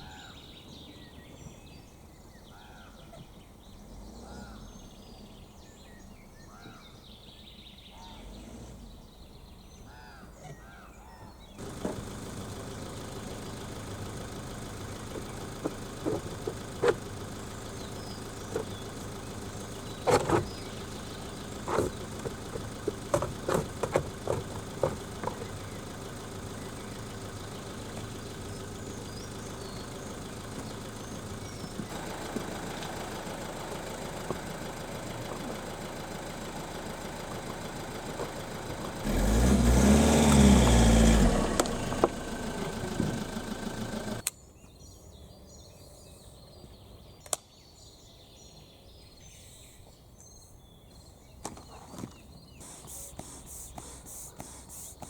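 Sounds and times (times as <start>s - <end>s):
car engine running: 3.3s - 6.0s, 11.5s - 44.3s, 51.9s - 55.0s.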